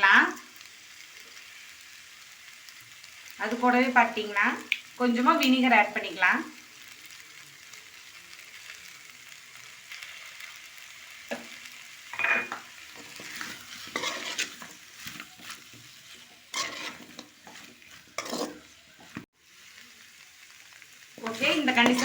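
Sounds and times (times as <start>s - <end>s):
chicken sizzling in a pan: 0.0s - 22.0s
spatula scraping a pan: 12.2s - 19.3s, 21.2s - 22.0s.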